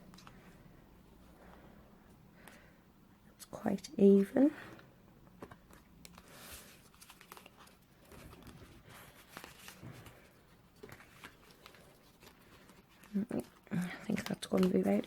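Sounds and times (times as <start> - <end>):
cardstock rustling and tapping: 10.8 - 15.0.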